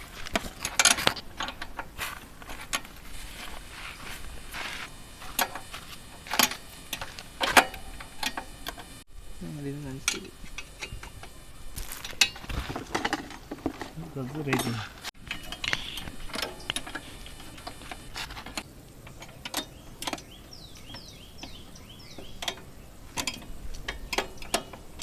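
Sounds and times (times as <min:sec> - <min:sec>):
spanner clicking on metal: 0:05.3 - 0:08.9, 0:10.0 - 0:11.4, 0:18.4 - 0:25.0.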